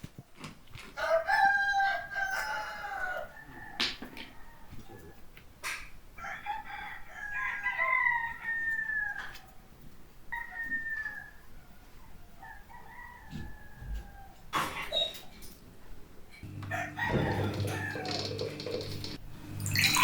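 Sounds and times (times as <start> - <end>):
rooster crowing: 1.0 - 5.1, 6.2 - 9.5, 10.3 - 14.5, 16.5 - 19.1.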